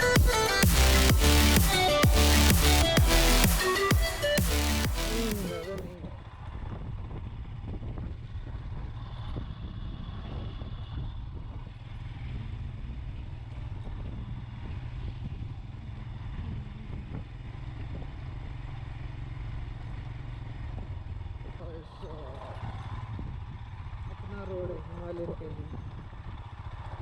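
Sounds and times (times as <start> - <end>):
wind and road noise: 5.8 - 27.0.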